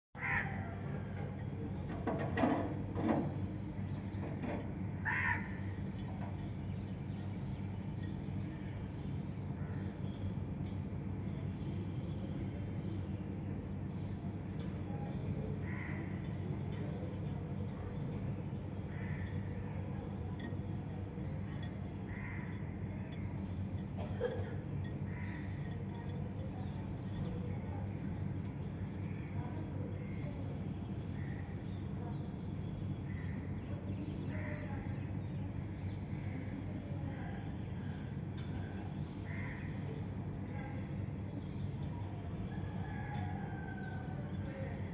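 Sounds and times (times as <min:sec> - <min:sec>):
steady low hum: 0:00.2 - 0:44.9.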